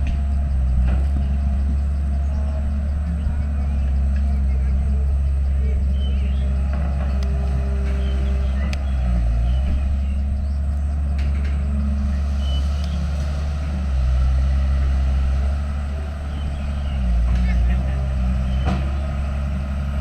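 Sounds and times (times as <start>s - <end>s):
diesel engine running: 0.0s - 20.0s
faint clicks: 6.7s - 8.0s.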